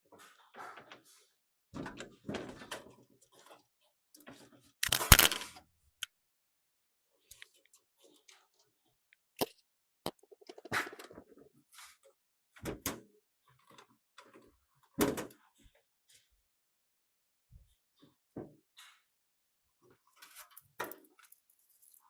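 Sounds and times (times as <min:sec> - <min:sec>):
hard objects knocking and clicking: 0:04.8 - 0:05.4.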